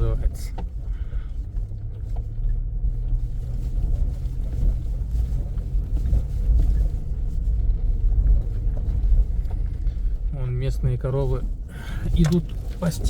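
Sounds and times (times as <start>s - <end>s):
car engine and tyres on dirt: 0.0s - 13.0s.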